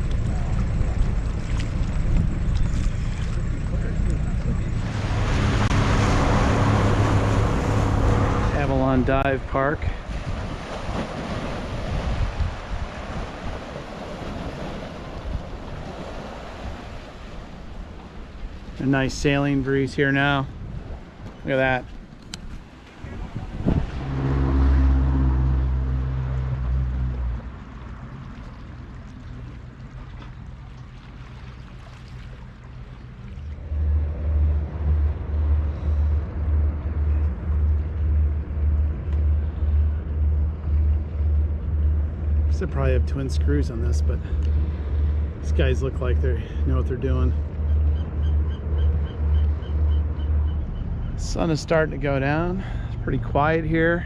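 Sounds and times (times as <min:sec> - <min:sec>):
boat engine throbbing: 0:00.0 - 0:54.0
water washing past hull: 0:00.0 - 0:54.0
wind gusting over microphone: 0:04.2 - 0:27.3.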